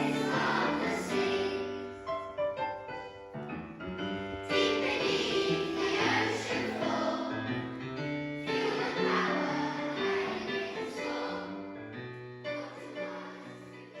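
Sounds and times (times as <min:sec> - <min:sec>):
choir singing: 0:00.0 - 0:02.0, 0:04.4 - 0:07.8, 0:08.4 - 0:14.0
piano accompaniment: 0:00.0 - 0:14.0.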